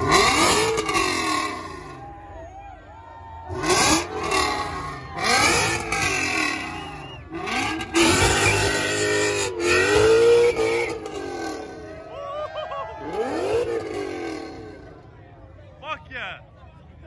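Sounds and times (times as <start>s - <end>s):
car engine revving: 0.0s - 2.2s, 3.5s - 12.2s, 12.9s - 15.2s.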